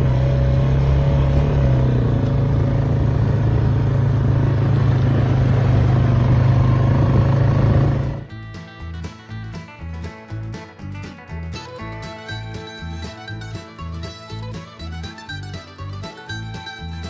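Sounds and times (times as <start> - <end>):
vehicle engine running: 0.0 - 8.4.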